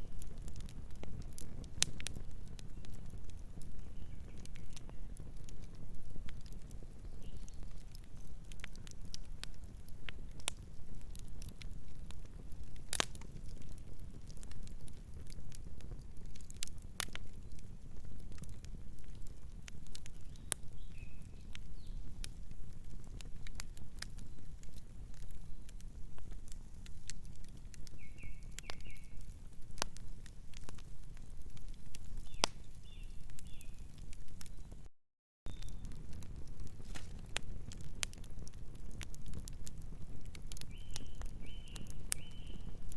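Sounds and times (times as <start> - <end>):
wood fire crackling: 0.0 - 34.9, 35.5 - 42.9
bird chirps: 35.5 - 35.8.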